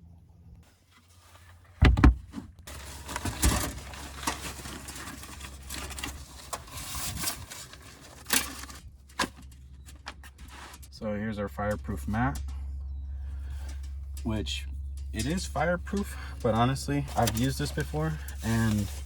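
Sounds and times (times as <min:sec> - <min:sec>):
gear rustling and clattering: 0:01.0 - 0:11.0, 0:11.7 - 0:19.0
knock: 0:01.8 - 0:02.2
heavy thumps: 0:01.8 - 0:02.6.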